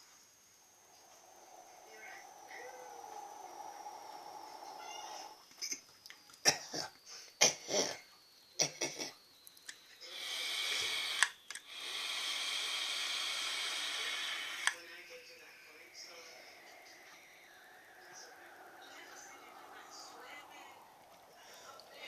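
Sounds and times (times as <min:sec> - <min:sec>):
breathy vapour hissing: 0:00.0 - 0:05.9, 0:06.5 - 0:22.0
short clicks and pops: 0:11.2 - 0:11.7.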